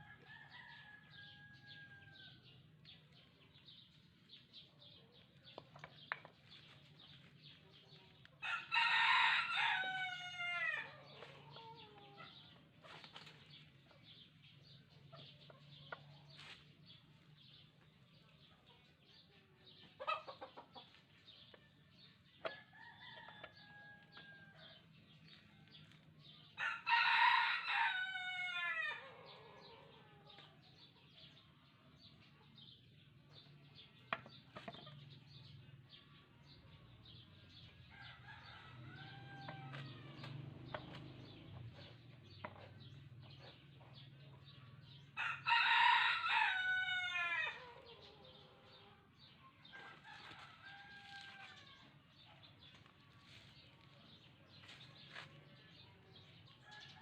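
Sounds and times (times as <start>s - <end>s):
rooster crowing: 8.4s - 10.9s, 26.6s - 29.3s, 45.2s - 47.9s.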